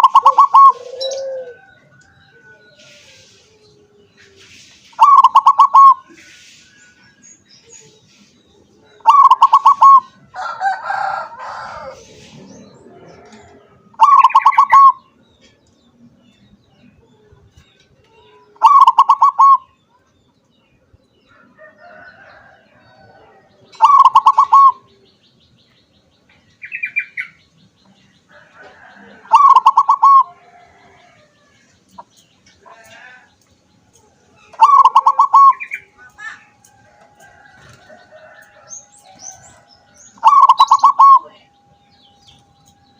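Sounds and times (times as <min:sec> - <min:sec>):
dove cooing: 0:00.0 - 0:06.2, 0:08.9 - 0:15.0, 0:18.4 - 0:19.7, 0:22.9 - 0:25.0, 0:28.6 - 0:31.4, 0:34.5 - 0:36.4, 0:37.3 - 0:41.5
birds chirping: 0:00.0 - 0:42.9.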